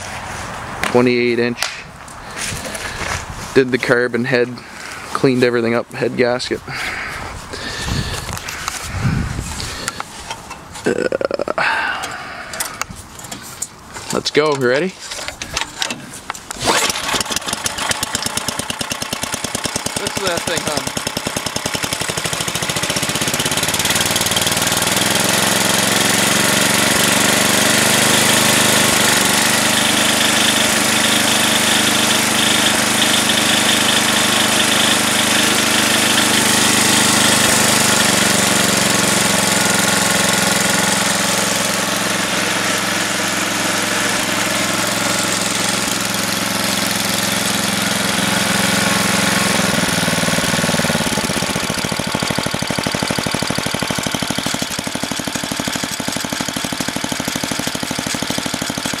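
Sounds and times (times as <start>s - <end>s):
snowblower engine running: 2.2s - 3.6s, 4.2s - 10.5s, 11.3s - 13.4s, 16.5s - 59.0s.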